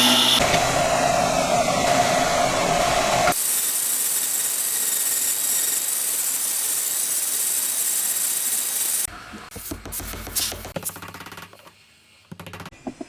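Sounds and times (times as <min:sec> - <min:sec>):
motor running: 0:00.0 - 0:00.6.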